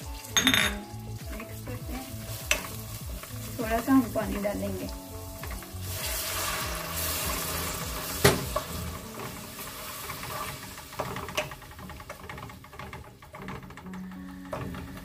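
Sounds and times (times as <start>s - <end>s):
onions sizzling in hot oil: 0.0s - 15.0s
spoon knocking against pot: 0.4s - 0.9s.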